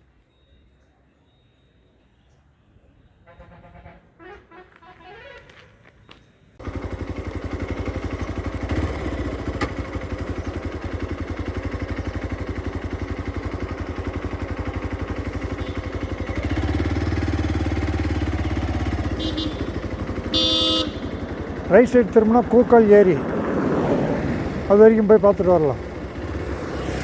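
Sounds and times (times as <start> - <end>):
motorcycle engine running: 6.6 - 27.0.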